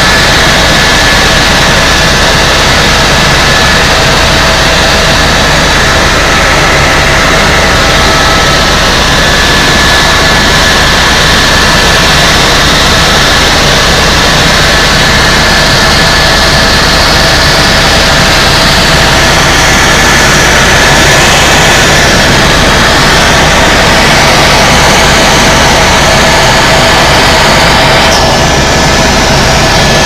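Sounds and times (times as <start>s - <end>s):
helicopter turbine and rotor noise: 0.0s - 30.0s
thin high whine: 0.0s - 30.0s.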